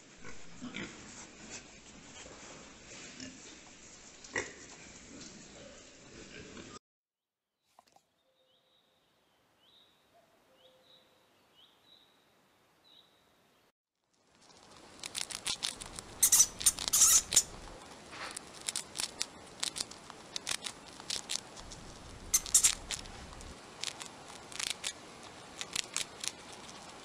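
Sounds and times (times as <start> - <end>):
guinea pig crunching carrot: 14.3 - 27.0.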